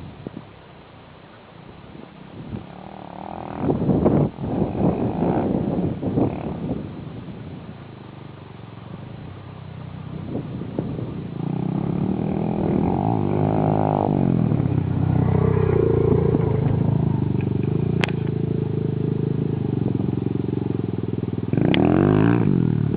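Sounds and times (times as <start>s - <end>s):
motorcycle engine revving: 2.6s - 22.9s.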